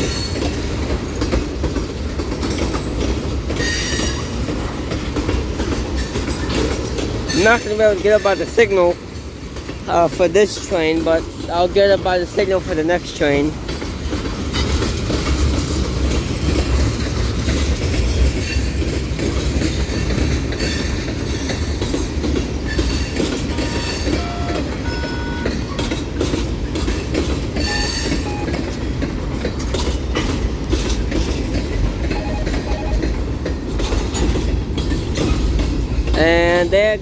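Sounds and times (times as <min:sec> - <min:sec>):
freight train rumbling past: 0:00.0 - 0:37.0
wheels clacking over rail joints: 0:00.0 - 0:37.0
high wheel squeals: 0:22.7 - 0:26.0, 0:27.6 - 0:28.6.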